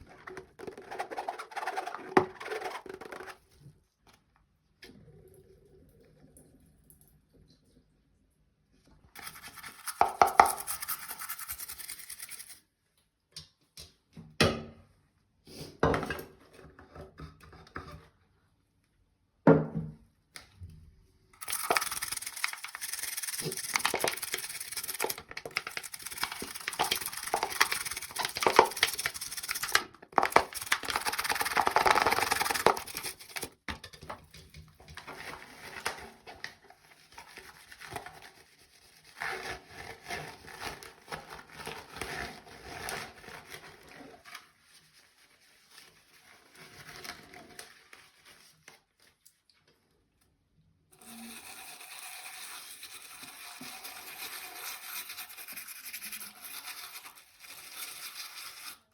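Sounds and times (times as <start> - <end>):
brush scrubbing: 0.0 - 3.3, 9.2 - 12.6, 21.4 - 33.5, 51.2 - 58.9.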